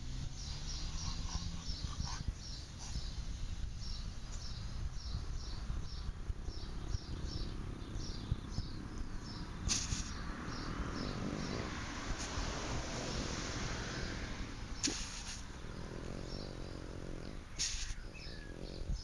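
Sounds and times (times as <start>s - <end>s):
small bird chirping: 0.0s - 19.0s
dog snuffling in soil: 0.5s - 3.1s, 9.6s - 10.3s, 14.8s - 18.8s.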